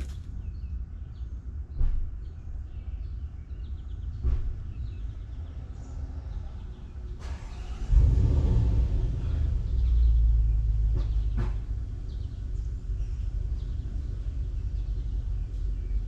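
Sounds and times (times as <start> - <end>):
thumps: 0.0 - 0.3
small birds chirping: 0.0 - 7.2, 9.6 - 16.0.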